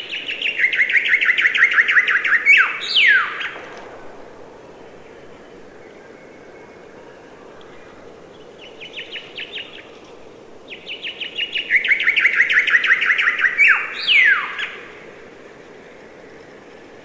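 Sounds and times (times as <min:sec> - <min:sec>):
songbird trilling: 0:00.0 - 0:03.6, 0:10.7 - 0:14.8.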